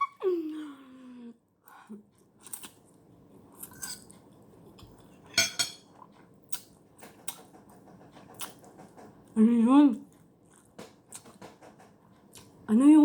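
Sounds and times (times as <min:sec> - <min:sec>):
cutlery clinking against a dish: 0:05.2 - 0:05.9.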